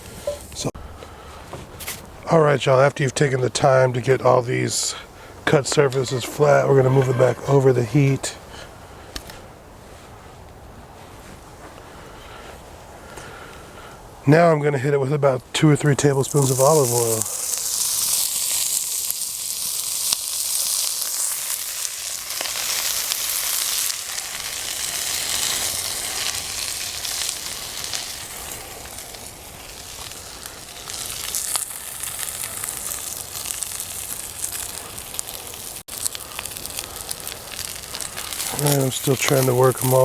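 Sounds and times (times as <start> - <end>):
vegetables sizzling in oil: 16.2 - 40.0.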